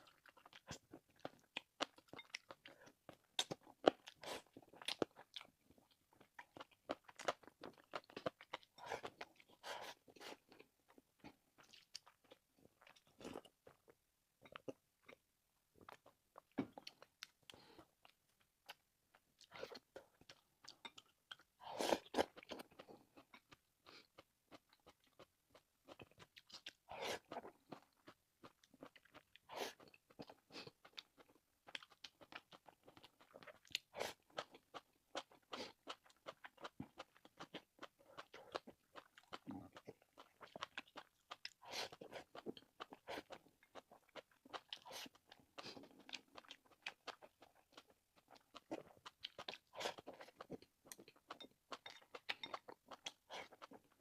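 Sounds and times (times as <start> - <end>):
chewing and biting meat: 24.2 - 54.0.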